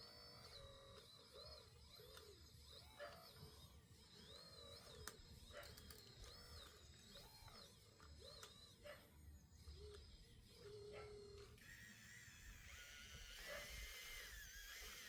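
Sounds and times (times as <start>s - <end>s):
faint birds chirping: 0.0s - 11.7s.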